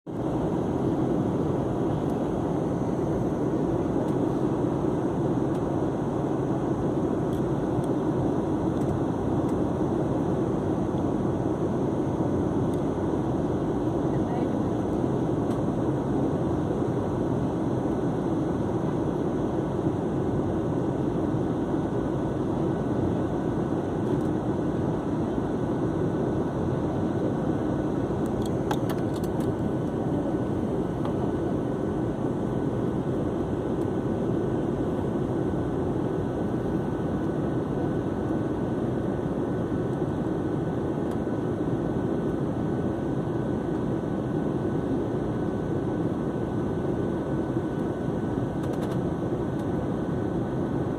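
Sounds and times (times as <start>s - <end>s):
airliner cabin noise: 0.1s - 50.9s.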